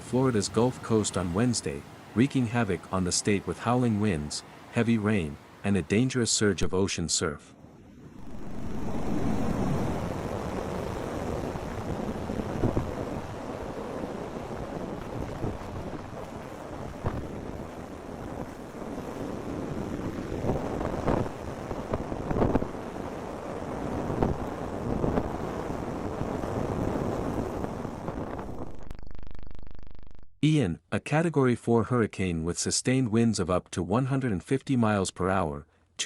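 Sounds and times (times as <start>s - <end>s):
wind buffeting microphone: 7.8s - 28.9s.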